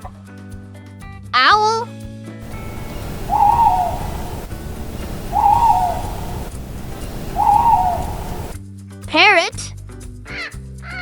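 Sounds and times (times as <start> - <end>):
owl hooting: 2.4 - 8.6.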